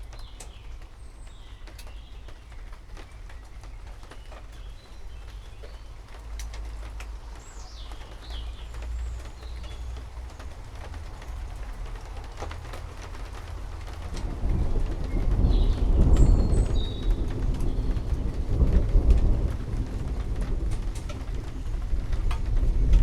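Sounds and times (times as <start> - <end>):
steady rain: 0.0 - 23.0
water drips: 0.0 - 23.0
thunder rolling: 13.4 - 23.0
low rumble: 14.2 - 23.0.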